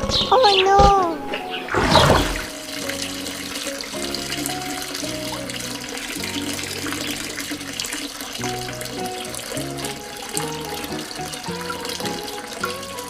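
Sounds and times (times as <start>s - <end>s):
background music of held notes: 0.0s - 13.0s
running splashing water: 0.6s - 13.0s.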